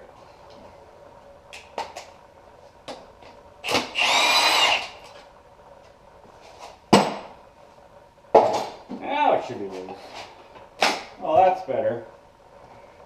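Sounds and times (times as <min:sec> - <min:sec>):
power tool whining: 0:03.6 - 0:05.1.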